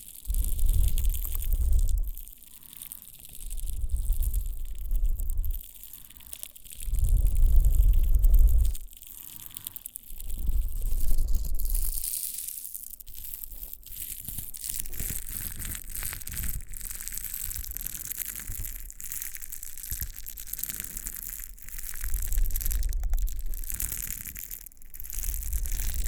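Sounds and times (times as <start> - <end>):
scratching on microphone: 0.3 - 2.3, 6.8 - 8.9, 10.2 - 12.6, 13.2 - 26.0
low rumble of contact: 0.3 - 2.4, 3.4 - 8.9, 10.2 - 12.1, 20.0 - 24.4, 25.0 - 26.0.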